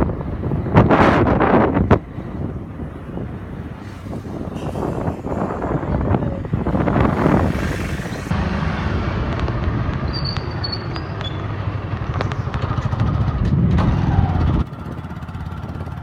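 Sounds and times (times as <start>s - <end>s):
vehicle rumble: 0.0s - 16.0s
short high squeak: 10.0s - 11.6s.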